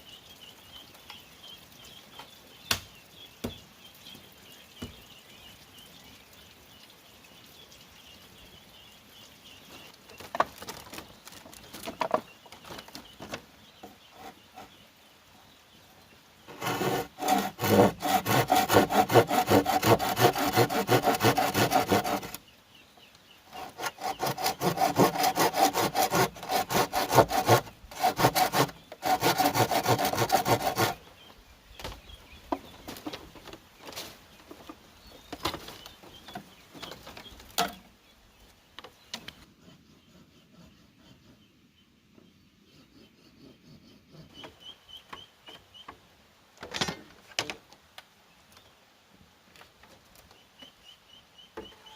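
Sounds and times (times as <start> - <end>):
hand saw cutting bamboo: 16.5 - 22.4, 23.5 - 31.0.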